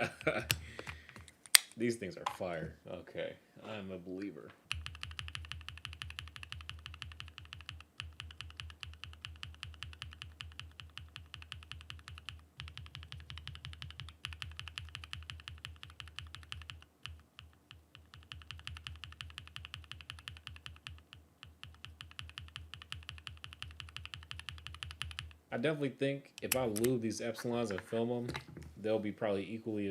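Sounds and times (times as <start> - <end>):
mechanical keyboard typing clacks: 4.7 - 25.3.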